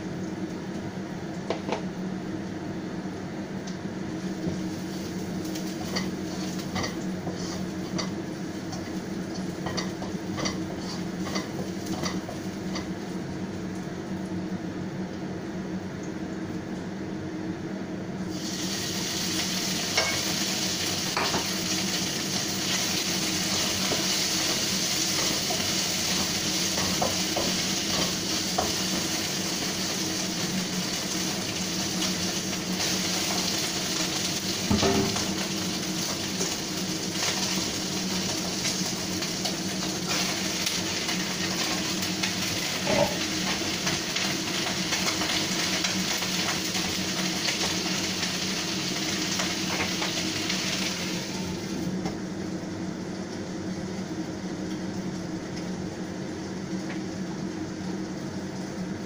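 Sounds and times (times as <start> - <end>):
range hood fan humming: 0.0 - 59.0
vegetables sizzling in hot oil: 4.0 - 13.5, 18.2 - 52.0.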